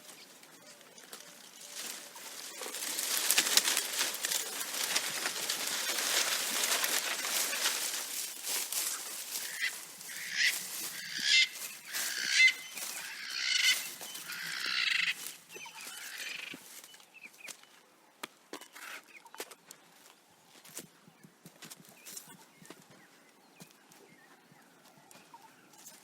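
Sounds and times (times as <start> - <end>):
animal calling: 8.8 - 16.6.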